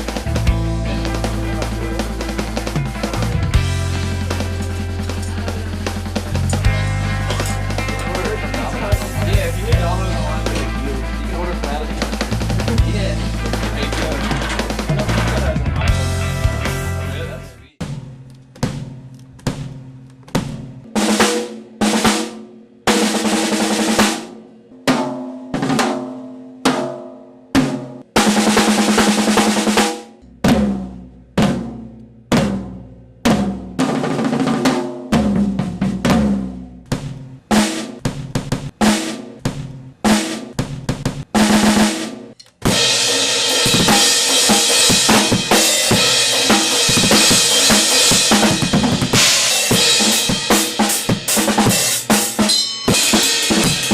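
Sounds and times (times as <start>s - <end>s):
cymbals washing: 0.0s - 16.9s, 42.7s - 53.9s
drum kit playing: 0.0s - 53.9s.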